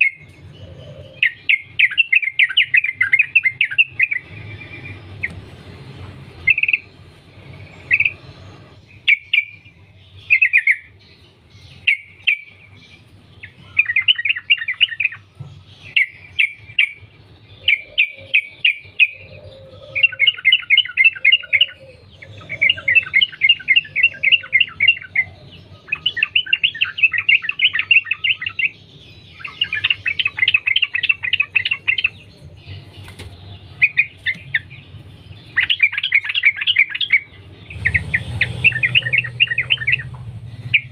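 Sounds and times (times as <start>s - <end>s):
bird singing chattering runs: 20.2s - 40.9s.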